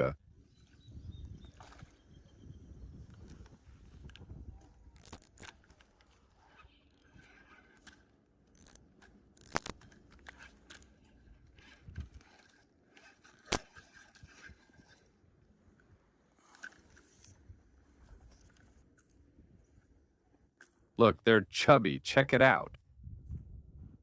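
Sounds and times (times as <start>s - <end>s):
handling clicks and scrapes: 3.1s - 15.2s
sharp clicks: 7.8s - 10.8s.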